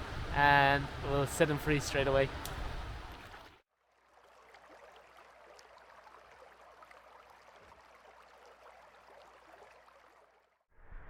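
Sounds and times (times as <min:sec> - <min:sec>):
stream water rushing: 0:00.0 - 0:03.6.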